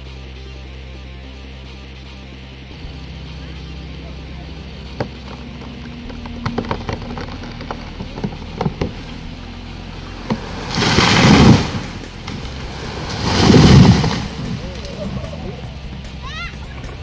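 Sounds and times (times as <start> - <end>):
tree crashing down: 2.8 - 16.5
wood cracking and snapping: 4.5 - 16.1.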